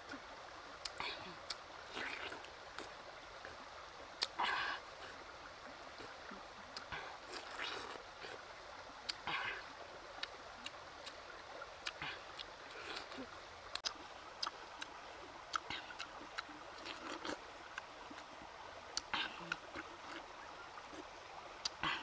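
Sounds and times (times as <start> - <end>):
mouth smacks and clicks: 11.8 - 14.9
juicy biting and chewing: 16.8 - 17.4.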